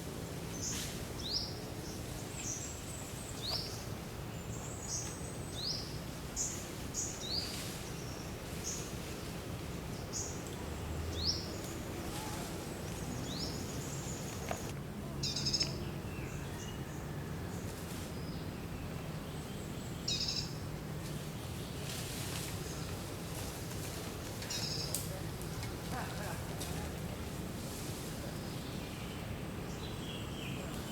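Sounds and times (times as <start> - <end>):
birds chirping: 0.5 - 8.9, 9.9 - 16.8.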